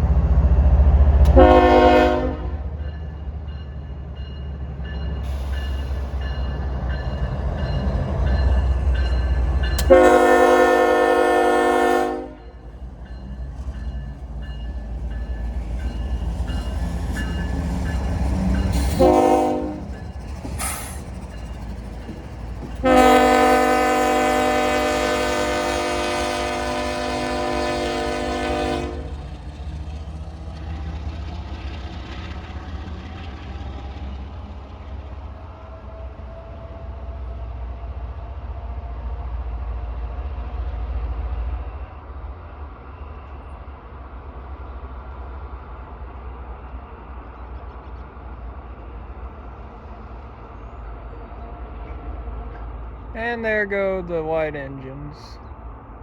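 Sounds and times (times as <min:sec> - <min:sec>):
low rumble of train: 0:00.0 - 0:56.0
locomotive air horn: 0:01.3 - 0:02.6, 0:09.8 - 0:12.4, 0:18.8 - 0:20.0, 0:22.8 - 0:29.1.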